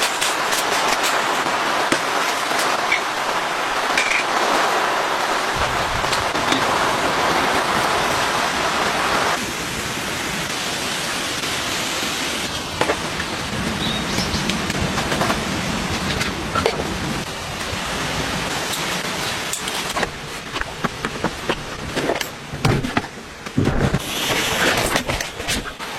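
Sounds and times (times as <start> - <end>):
raindrops tapping: 0.0 - 9.2, 12.4 - 17.8
steady rain falling: 0.0 - 25.9.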